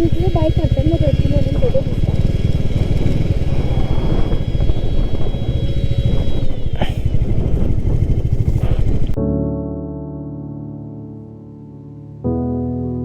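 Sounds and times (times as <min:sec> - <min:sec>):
piano music: 0:00.0 - 0:02.0, 0:09.2 - 0:13.0
motorcycle engine rumble: 0:00.0 - 0:09.2.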